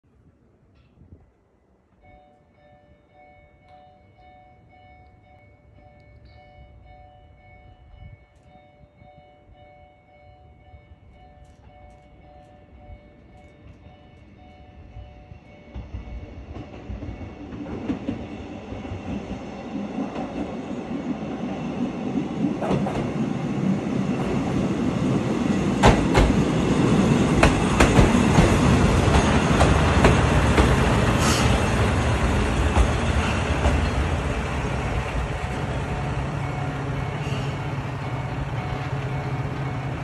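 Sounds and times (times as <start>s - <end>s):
diesel railcar engine and wheels: 0.1s - 40.0s
wheels clicking over rail joints: 15.7s - 36.3s.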